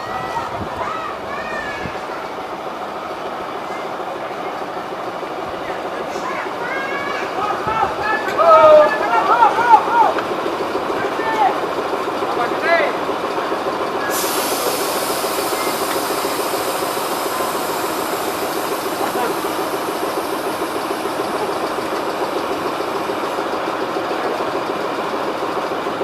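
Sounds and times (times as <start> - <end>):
locomotive diesel engine idling: 0.0 - 26.0
high hiss: 14.0 - 23.2.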